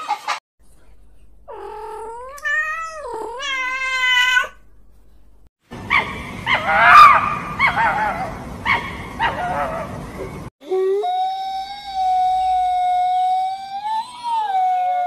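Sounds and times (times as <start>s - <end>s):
cat meowing: 1.5s - 4.6s
dogs whining and yipping: 5.9s - 10.0s.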